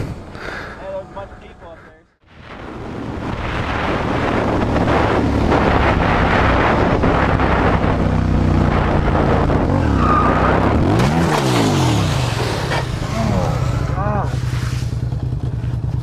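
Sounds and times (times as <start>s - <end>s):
wind rush: 2.2s - 15.0s
motorcycle engine at speed: 2.5s - 16.0s.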